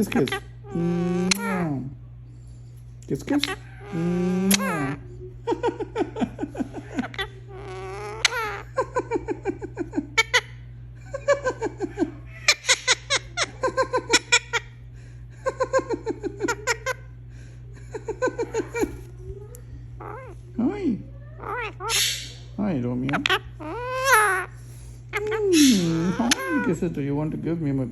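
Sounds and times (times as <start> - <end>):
parakeet mimicking laughter: 0.0 - 1.9, 3.4 - 17.2, 17.9 - 19.1, 20.0 - 20.5, 21.2 - 26.9
parakeet wavering call: 6.9 - 8.8, 20.0 - 20.4, 21.2 - 26.9.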